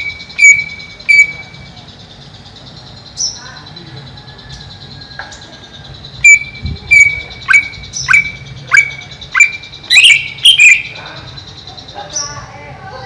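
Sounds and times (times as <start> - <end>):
bird calling sharp notes: 0.0 - 3.7, 5.8 - 12.5.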